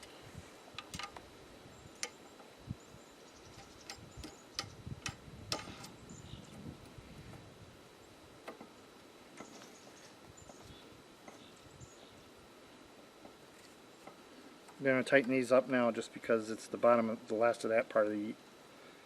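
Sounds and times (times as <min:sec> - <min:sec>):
metal bolts clicking and tapping: 0:00.8 - 0:01.2, 0:03.6 - 0:05.9.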